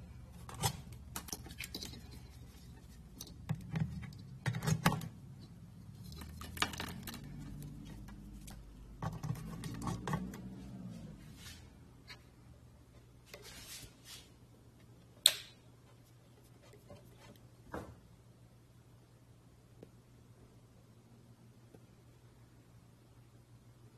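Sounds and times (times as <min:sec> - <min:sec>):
low steady hum: 0:00.0 - 0:23.9
hard objects clicking and rattling: 0:00.4 - 0:05.2, 0:06.0 - 0:10.4.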